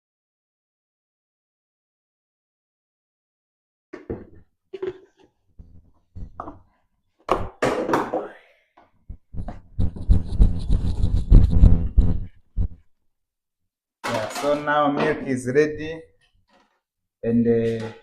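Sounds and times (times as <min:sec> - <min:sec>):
containers knocking and clattering: 0:14.0 - 0:15.3.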